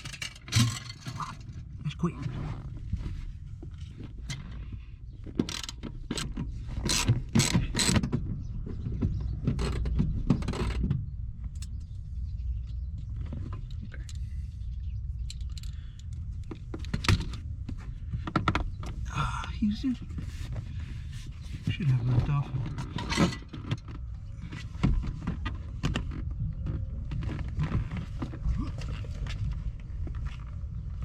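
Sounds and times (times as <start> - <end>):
mechanical clicks clanks and rattles: 0.0 - 1.5, 5.3 - 8.2.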